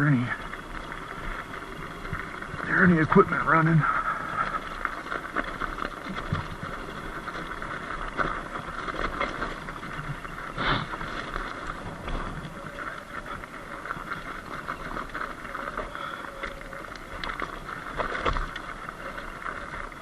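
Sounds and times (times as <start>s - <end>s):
small rattles and clicks: 0.0s - 20.0s
tyres crunching on gravel: 0.0s - 20.0s.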